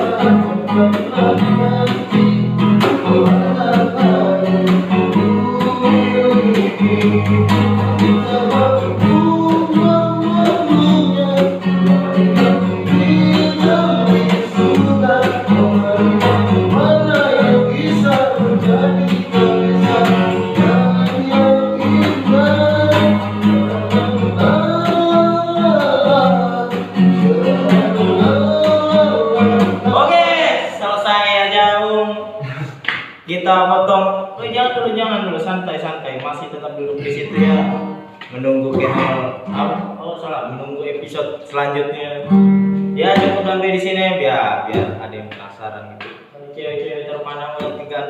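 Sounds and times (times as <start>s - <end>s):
person singing: 0.0s - 32.8s, 37.0s - 40.0s, 43.0s - 43.5s
guitar accompaniment: 0.0s - 33.3s, 34.2s - 48.0s.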